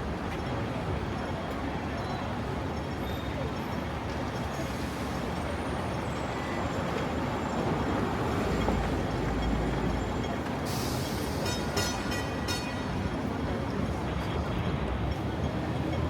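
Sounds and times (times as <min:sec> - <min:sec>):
tram rumbling on tracks: 0:00.0 - 0:16.0.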